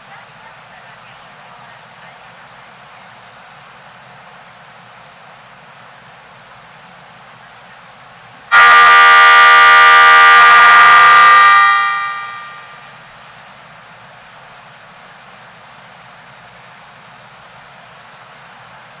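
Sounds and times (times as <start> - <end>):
train horn blast: 8.5 - 12.9.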